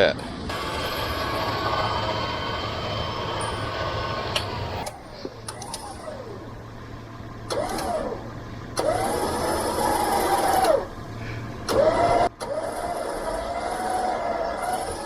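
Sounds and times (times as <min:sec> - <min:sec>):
electric winch motor whining: 0:00.2 - 0:15.0.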